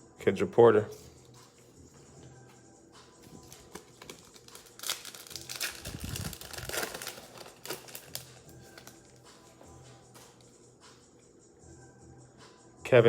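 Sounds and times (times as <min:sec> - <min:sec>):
plastic wrapper tearing and crinkling: 0:03.2 - 0:09.3.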